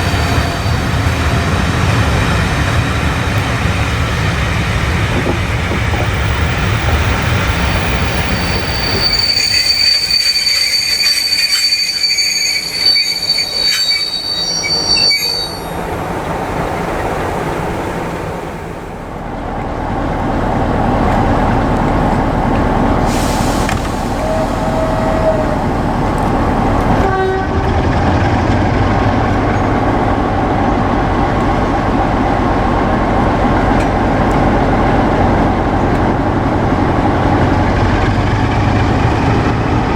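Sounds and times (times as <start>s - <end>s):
train wheels squealing: 0.0s - 1.6s, 5.8s - 16.1s, 23.1s - 26.2s
train horn notes: 0.0s - 2.1s, 23.0s - 28.2s
train rumbling: 0.0s - 39.9s.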